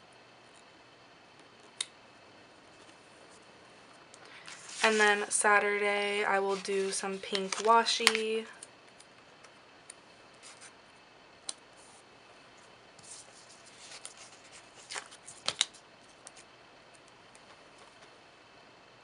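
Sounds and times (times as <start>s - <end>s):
sticker sheet rustling: 4.5s - 5.3s, 6.4s - 8.3s, 13.0s - 16.4s.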